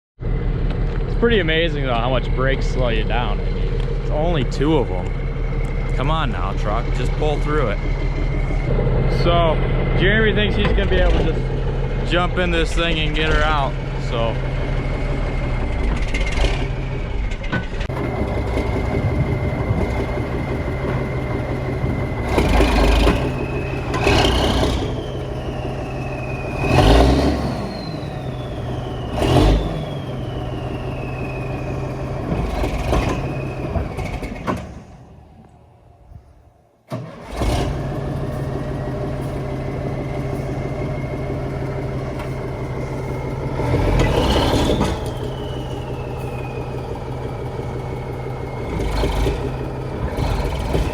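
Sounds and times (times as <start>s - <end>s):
diesel truck engine revving: 0.2s - 50.9s.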